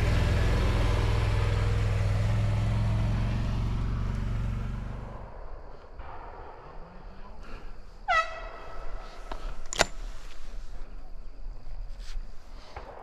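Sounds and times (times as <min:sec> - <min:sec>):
vehicle engine droning: 0:00.0 - 0:11.2.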